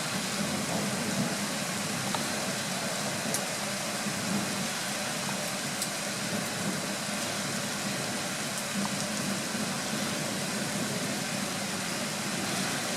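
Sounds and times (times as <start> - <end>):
steady rain hiss: 0.0 - 12.9
raindrops ticking: 3.3 - 3.5, 8.5 - 9.4.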